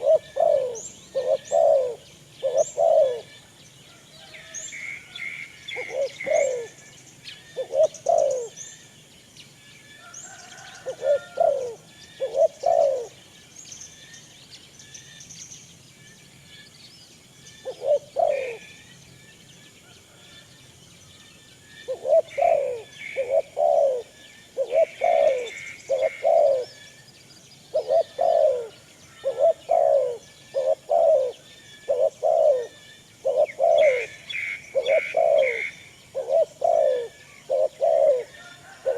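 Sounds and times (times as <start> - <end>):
pigeons cooing: 0.0 - 3.3, 5.7 - 6.8, 7.5 - 8.6, 10.3 - 13.2, 17.6 - 18.7, 21.9 - 26.9, 27.7 - 38.9
small birds chirping: 0.0 - 3.7, 4.5 - 38.5.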